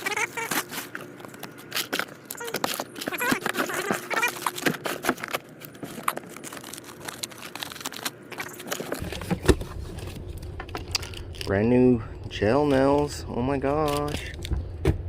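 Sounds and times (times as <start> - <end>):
packaging rustling and crinkling: 0.0 - 11.5
low steady hum: 0.0 - 15.0.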